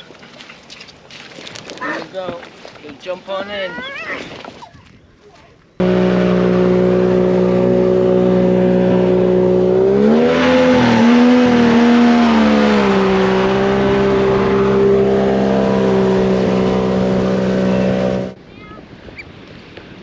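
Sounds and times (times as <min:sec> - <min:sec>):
vehicle engine running: 0:05.8 - 0:18.4.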